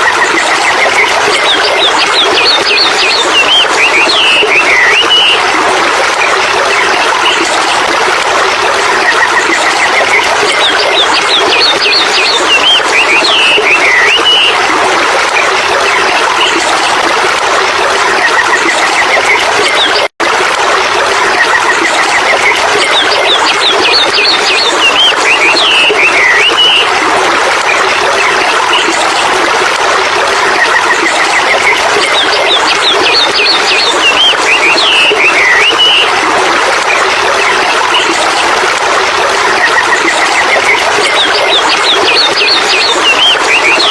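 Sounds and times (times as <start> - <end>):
stream water rushing: 0.0 - 43.9
birds chirping and trilling: 9.8 - 14.6, 31.4 - 36.1, 40.7 - 43.9.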